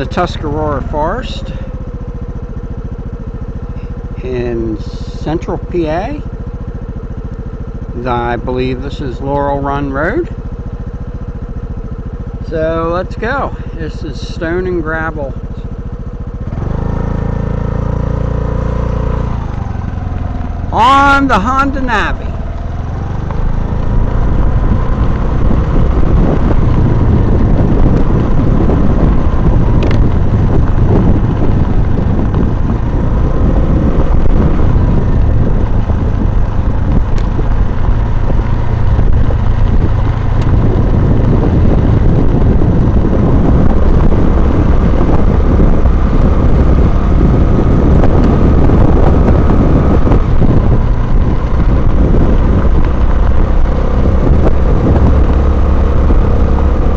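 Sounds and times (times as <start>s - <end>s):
small engine running: 0.0s - 56.9s
wind rumble on microphone: 0.0s - 56.9s.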